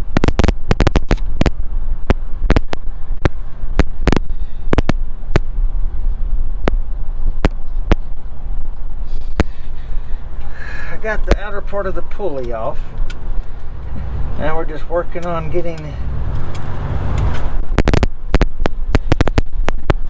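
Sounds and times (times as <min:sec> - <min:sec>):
steady low hum: 0:09.5 - 0:17.8.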